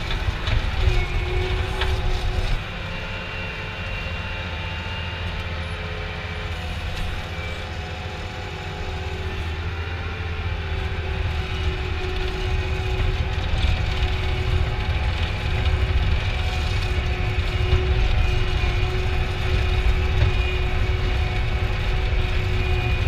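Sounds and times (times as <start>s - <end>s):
low engine-like rumble: 8.8s - 23.0s.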